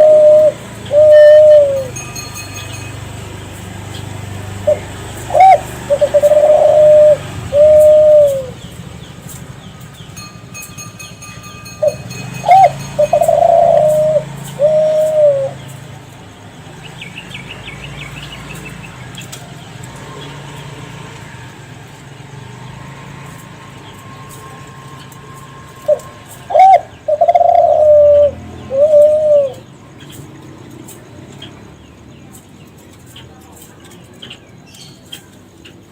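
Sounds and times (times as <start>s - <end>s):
dove cooing: 0.0s - 2.1s, 3.8s - 8.7s, 11.8s - 16.0s, 25.7s - 30.3s.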